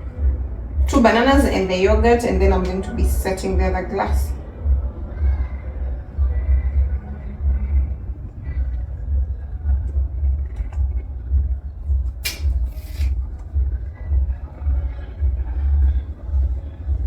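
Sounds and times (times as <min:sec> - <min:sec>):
music with pulsing bass beat: 0:00.0 - 0:17.0
brief hiss: 0:12.2 - 0:13.2.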